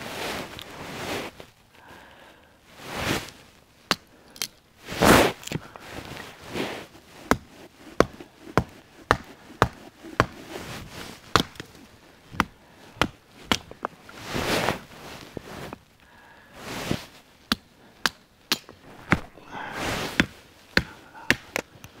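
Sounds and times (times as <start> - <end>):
rustle: 0.0 - 22.0
axe chopping wood: 7.2 - 10.4, 11.2 - 11.7, 12.3 - 13.9, 17.5 - 19.4, 20.1 - 21.7.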